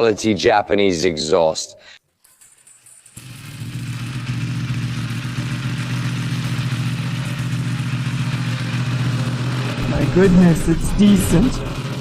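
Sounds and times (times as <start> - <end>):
motorcycle engine starting and idling: 3.0 - 12.0.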